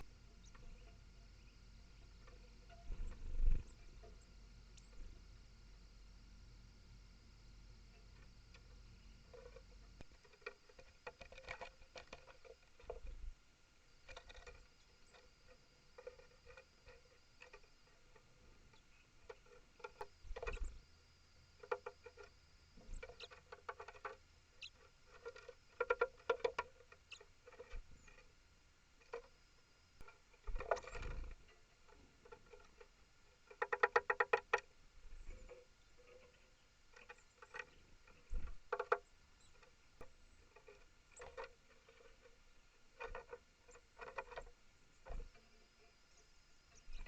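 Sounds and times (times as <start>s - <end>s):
animal scratching and tapping: 7.9s - 13.2s, 14.0s - 20.8s, 21.6s - 28.3s, 30.0s - 45.8s.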